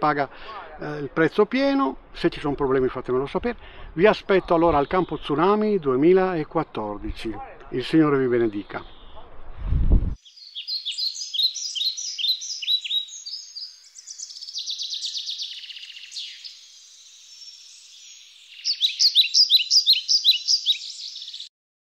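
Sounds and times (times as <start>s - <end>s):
bird chirping and trilling: 4.3s - 5.6s, 8.0s - 9.3s, 10.2s - 21.5s.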